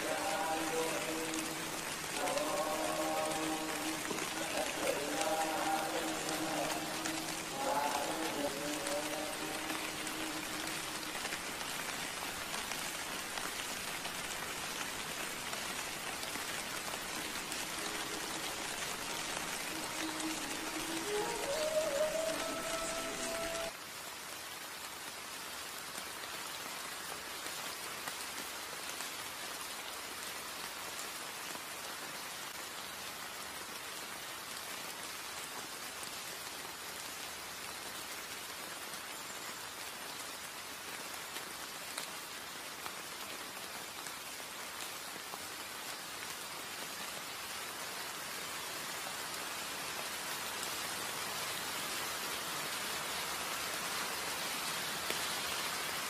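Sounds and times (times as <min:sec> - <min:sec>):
light rain on stone paving: 0:00.0 - 0:56.0.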